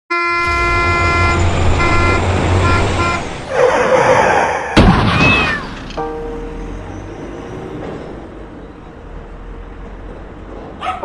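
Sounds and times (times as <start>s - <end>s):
train horn blaring: 0.1s - 3.8s
sharp bang: 0.4s - 3.5s, 4.8s - 6.8s
train rushing rumble: 0.4s - 11.0s
high squeal: 6.4s - 8.2s.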